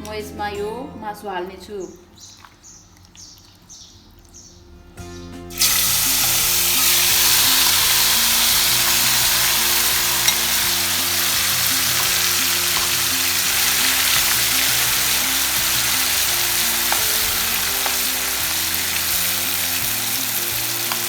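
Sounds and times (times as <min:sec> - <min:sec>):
meat sizzling in hot oil: 0:05.5 - 0:21.0.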